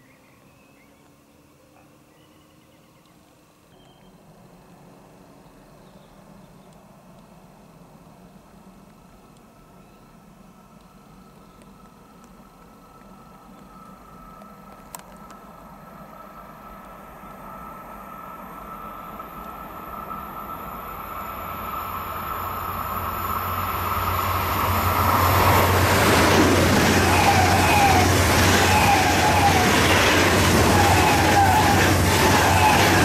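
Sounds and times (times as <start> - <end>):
high-speed train passing: 3.3 - 33.0
wavering high whine: 15.8 - 33.0.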